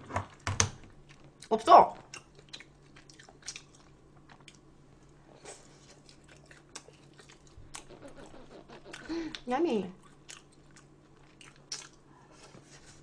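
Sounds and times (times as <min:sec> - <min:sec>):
person chewing food: 0:00.9 - 0:09.4, 0:10.0 - 0:12.5.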